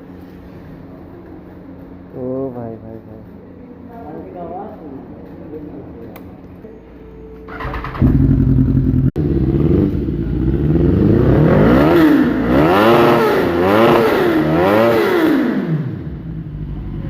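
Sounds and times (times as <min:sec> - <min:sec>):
motorcycle engine idling and revving: 0:07.5 - 0:17.0.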